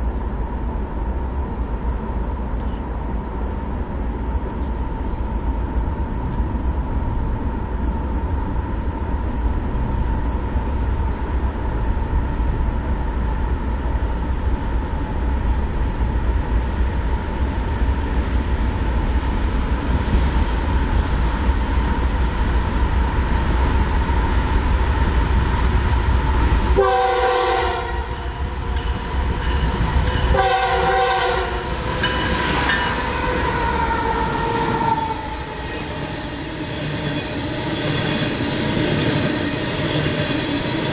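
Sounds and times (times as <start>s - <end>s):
freight train rumble and whine: 0.0s - 40.9s
locomotive air horn blasts: 26.8s - 28.3s, 30.3s - 31.7s.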